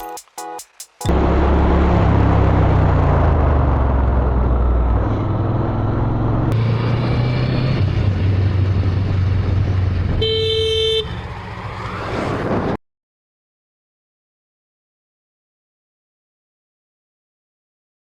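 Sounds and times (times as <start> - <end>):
vehicle engines in traffic: 1.0 - 12.8
vehicle horn honk: 10.2 - 11.2.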